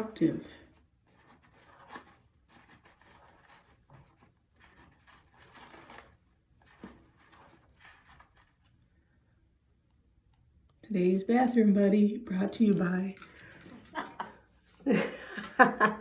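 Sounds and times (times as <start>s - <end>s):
parrot tearing toilet paper: 1.0s - 8.8s.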